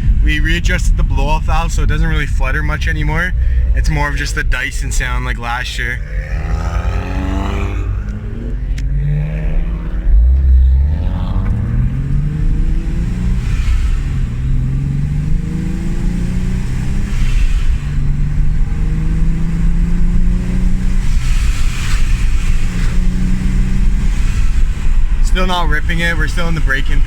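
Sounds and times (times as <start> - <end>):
car engine accelerating: 0.0 - 27.0
turbo whoosh: 0.0 - 27.0.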